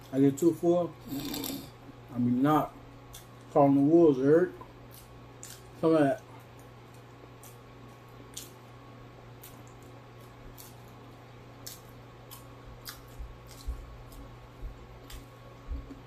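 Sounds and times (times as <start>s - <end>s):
steady low hum: 0.0s - 16.0s
person chewing: 1.0s - 1.8s, 4.8s - 5.7s, 9.3s - 11.0s, 11.6s - 14.4s, 15.0s - 16.0s.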